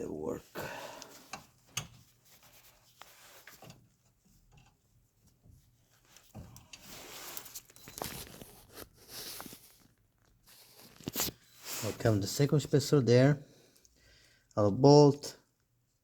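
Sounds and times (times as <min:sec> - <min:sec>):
rustling and scraping: 0:01.2 - 0:12.5.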